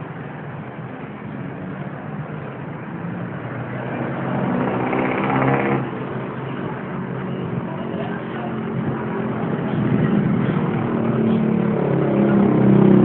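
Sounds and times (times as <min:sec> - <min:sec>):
steady traffic drone: 0:00.0 - 0:13.0
vehicle passing close: 0:03.2 - 0:06.2.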